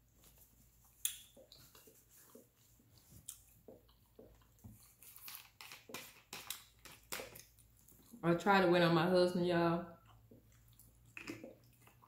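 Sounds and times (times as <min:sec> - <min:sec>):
wet chewing and mouth sounds: 0:00.2 - 0:08.2, 0:09.9 - 0:12.0.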